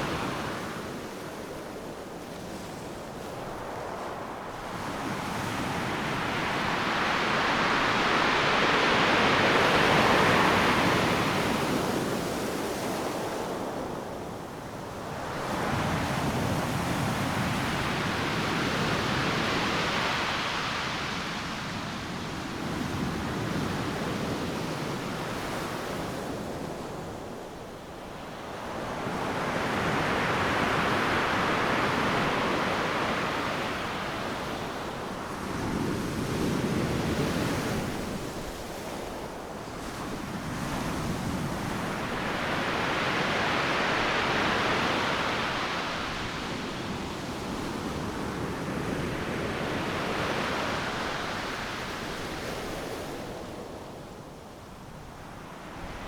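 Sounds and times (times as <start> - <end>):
ocean waves crashing on beach: 2.6 - 14.0, 28.1 - 53.5.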